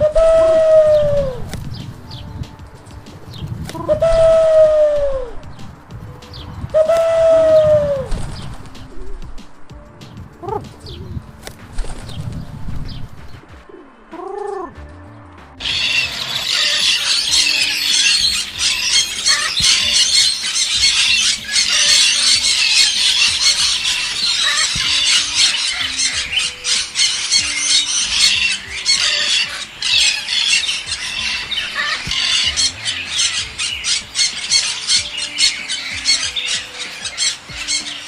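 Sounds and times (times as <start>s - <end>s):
flock of birds squawking: 6.2s - 8.7s, 15.6s - 38.0s.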